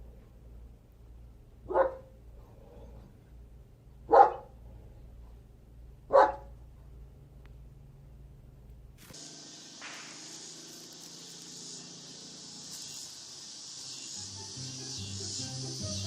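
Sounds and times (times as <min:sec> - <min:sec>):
dog barking: 0:01.7 - 0:02.1, 0:04.1 - 0:04.6, 0:06.1 - 0:06.5.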